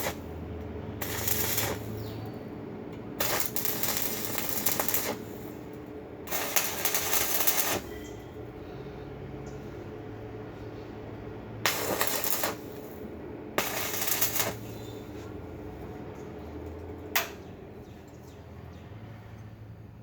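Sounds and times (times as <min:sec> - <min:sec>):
arc welding crackle: 0:00.0 - 0:08.5, 0:11.5 - 0:17.9
electrical hum: 0:00.0 - 0:19.3
sharp click: 0:17.2 - 0:17.4.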